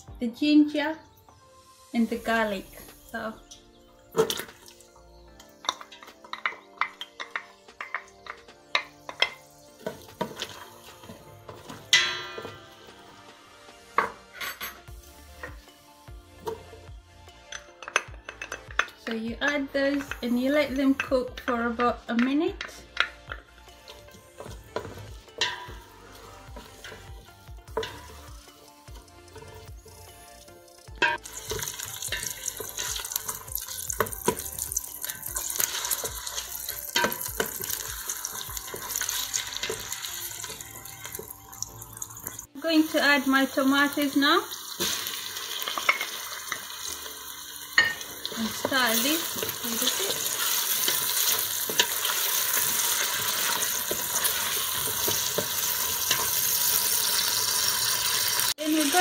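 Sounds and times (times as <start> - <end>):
vegetables sizzling in oil: 4.2 - 13.2, 23.0 - 59.0.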